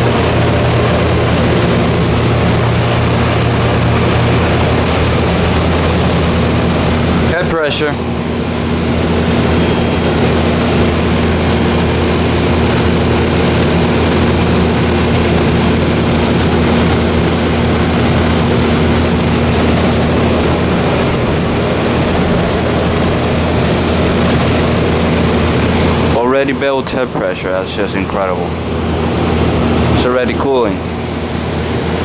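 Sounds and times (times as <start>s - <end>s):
rush of moving air: 0.0s - 27.1s
heat pump hum: 0.0s - 32.0s.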